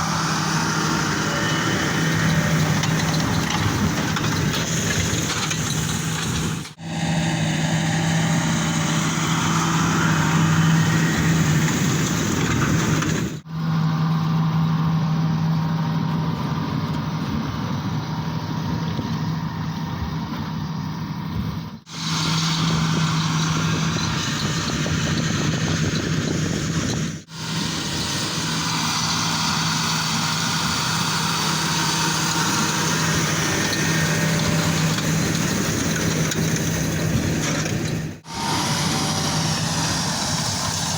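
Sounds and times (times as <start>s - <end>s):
baler machinery noise: 0.0s - 40.9s
tractor engine hum: 0.0s - 40.9s.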